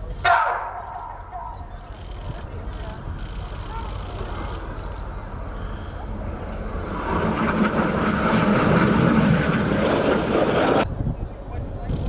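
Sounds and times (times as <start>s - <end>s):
jets flying past roaring: 1.8s - 10.9s.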